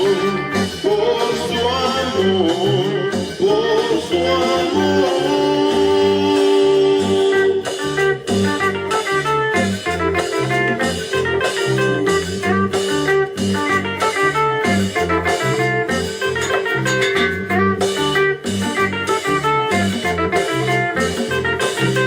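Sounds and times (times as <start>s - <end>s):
bass and drum beat: 0.0s - 22.0s
plucked melody: 8.1s - 22.0s.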